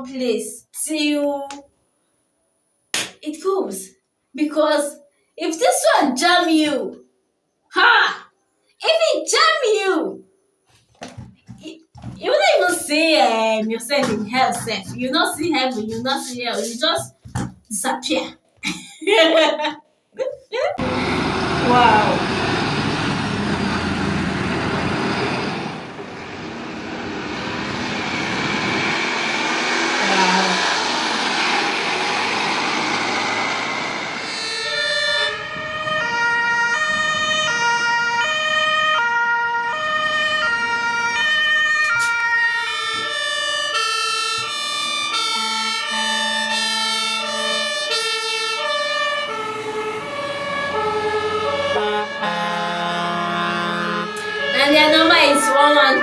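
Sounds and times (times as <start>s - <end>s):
loud rushing vehicle noise: 20.8s - 55.5s
second two-tone siren: 32.7s - 56.0s
fire truck two-tone siren: 32.9s - 56.0s.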